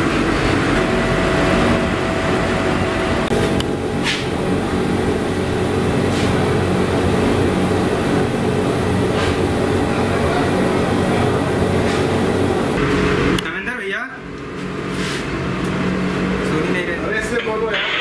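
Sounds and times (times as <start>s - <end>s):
train interior rumble and hum: 0.0s - 13.4s.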